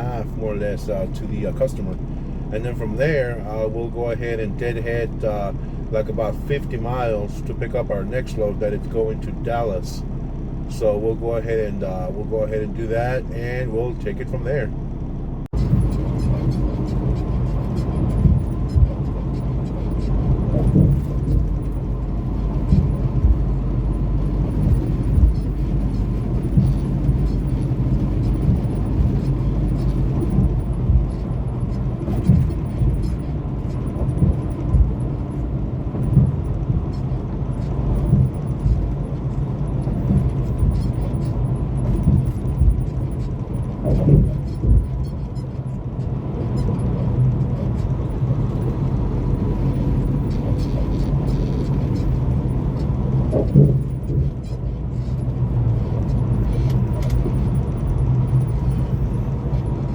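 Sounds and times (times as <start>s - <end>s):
road noise: 0.0s - 59.9s
truck diesel engine running: 0.0s - 59.9s
low thumps: 14.3s - 59.9s.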